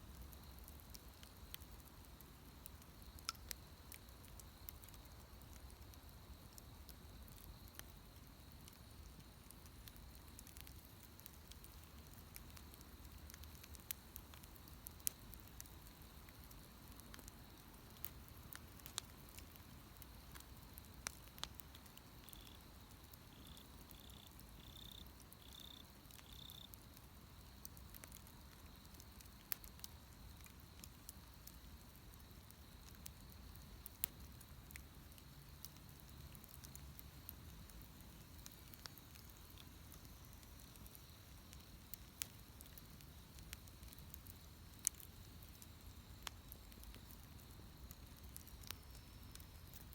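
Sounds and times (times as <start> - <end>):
bonfire crackling: 0.0 - 49.9.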